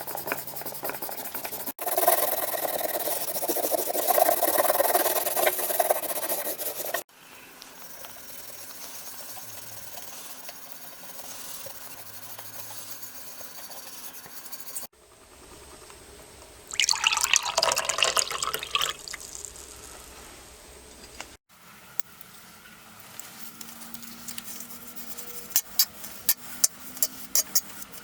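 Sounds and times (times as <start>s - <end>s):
tap water running and splashing: 16.7s - 19.8s.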